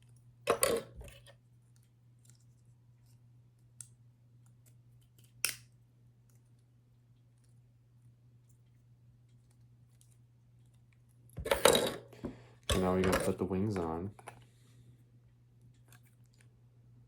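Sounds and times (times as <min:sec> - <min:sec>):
plastic parts clattering: 0:11.4 - 0:14.4.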